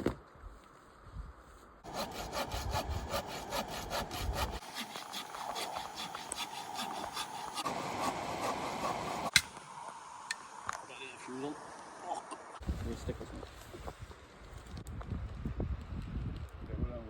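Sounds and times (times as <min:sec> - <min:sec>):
hand saw cutting wood: 0:01.8 - 0:09.5.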